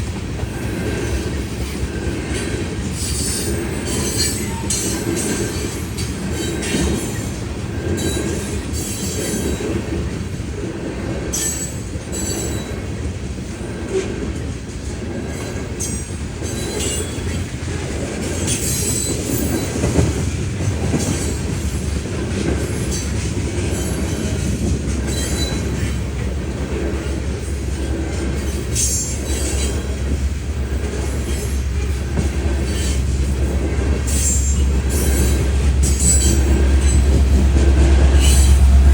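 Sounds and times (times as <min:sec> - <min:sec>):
train wheel rumble: 0:00.0 - 0:38.9
deep rumble: 0:37.5 - 0:38.9.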